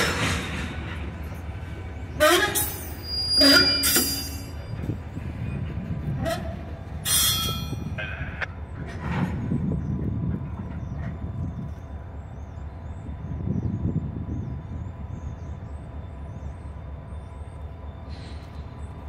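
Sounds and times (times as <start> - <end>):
freight train rumbling: 0.0 - 19.0
wheel or brake screeches: 2.6 - 4.7, 6.3 - 7.8.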